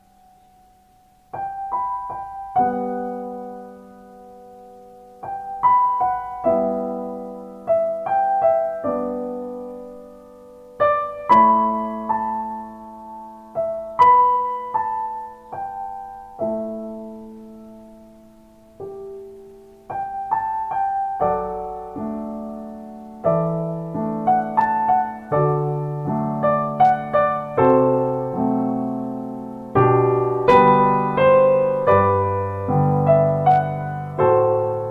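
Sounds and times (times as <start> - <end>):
slow solo piano music: 0.0 - 34.9.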